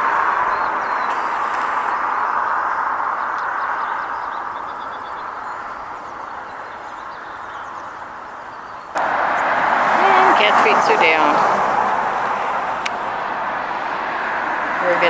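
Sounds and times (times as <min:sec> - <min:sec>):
passing vehicle road noise: 0:09.0 - 0:15.0.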